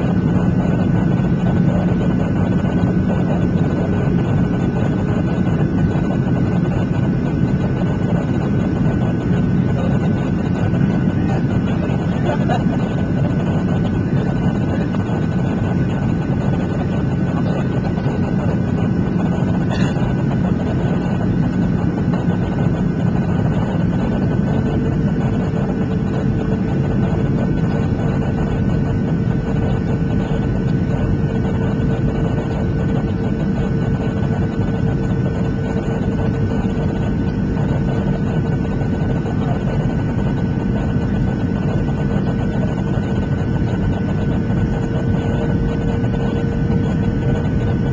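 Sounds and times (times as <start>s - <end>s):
jet engine rumble and airflow: 0.0s - 47.9s
steady whine: 0.0s - 47.9s.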